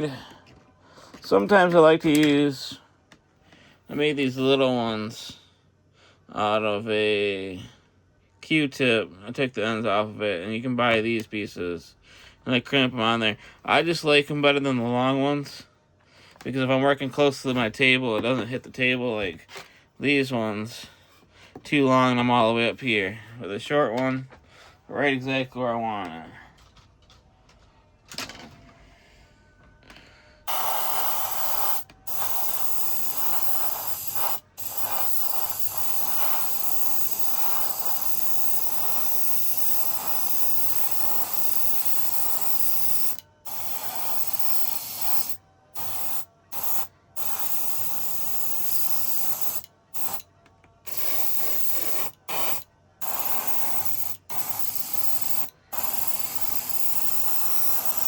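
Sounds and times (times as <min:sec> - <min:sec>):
spray paint hissing: 0:30.5 - 0:50.2, 0:50.8 - 0:58.0.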